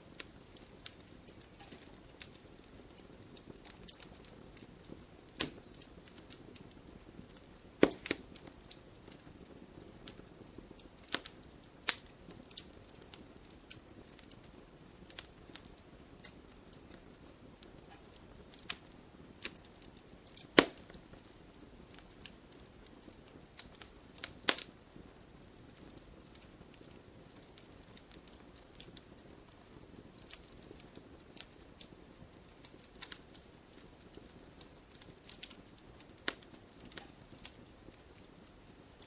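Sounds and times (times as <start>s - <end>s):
low steady hiss: 0.0s - 39.0s
wood fire crackling: 0.0s - 39.0s.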